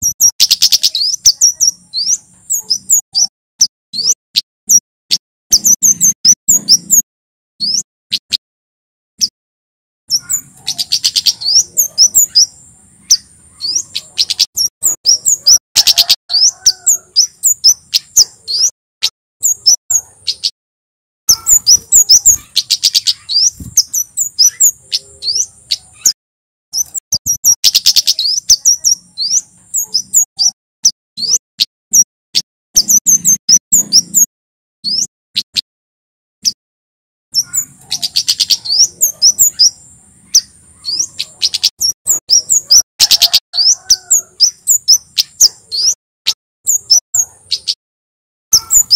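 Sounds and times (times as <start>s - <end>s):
bird rattling trill: 10.1s - 18.7s, 21.3s - 26.1s.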